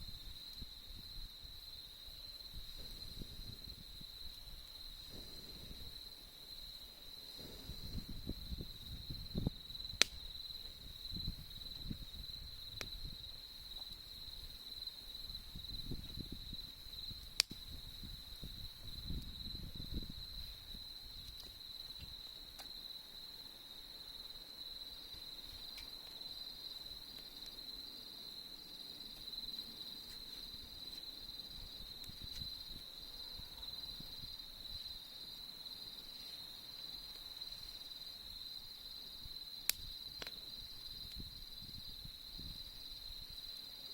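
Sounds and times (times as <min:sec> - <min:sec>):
fire popping: 0:00.0 - 0:23.2, 0:24.9 - 0:27.8, 0:28.9 - 0:35.0, 0:36.0 - 0:43.0
campfire fluttering: 0:00.0 - 0:43.5
crickets trilling: 0:00.0 - 0:43.9.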